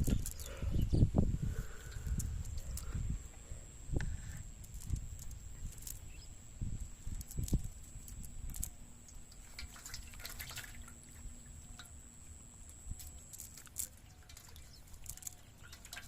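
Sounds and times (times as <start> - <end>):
water dripping and splashing: 7.1 - 16.0.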